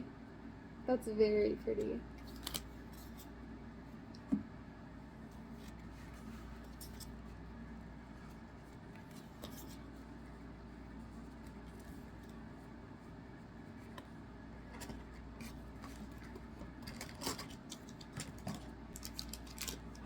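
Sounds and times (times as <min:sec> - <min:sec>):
low steady hum: 0:00.0 - 0:20.0
trading cards rustling and clicking: 0:14.8 - 0:20.0.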